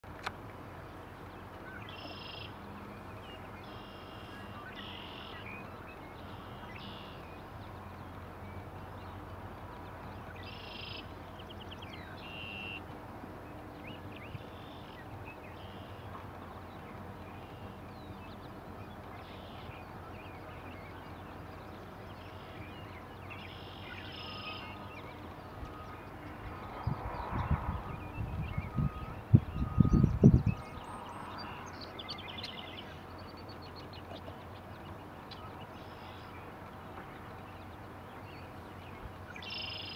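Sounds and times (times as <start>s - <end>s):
birds calling in high notes: 16.8s - 36.5s
steady low rumble: 24.5s - 39.4s.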